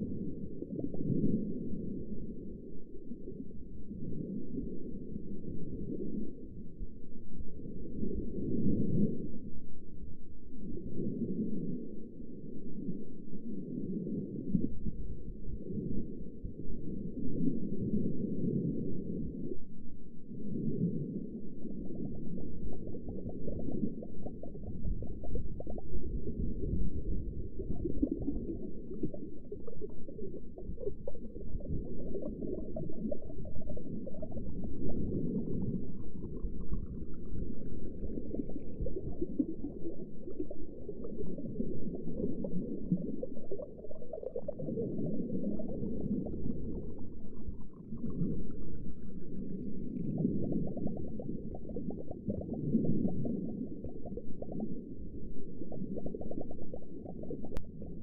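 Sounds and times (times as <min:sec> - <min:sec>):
underwater churning rumble: 0:20.5 - 0:58.0.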